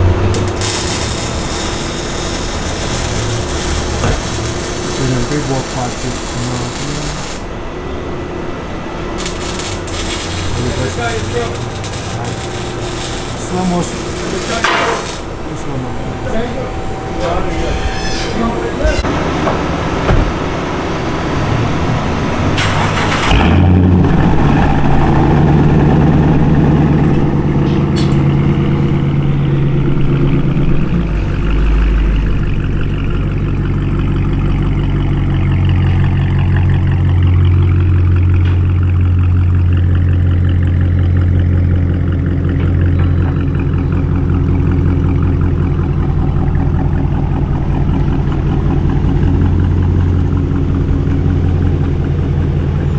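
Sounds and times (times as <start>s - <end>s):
car engine cranking: 0.0s - 7.6s, 8.8s - 15.4s
car engine idling: 0.0s - 16.2s, 29.0s - 52.9s.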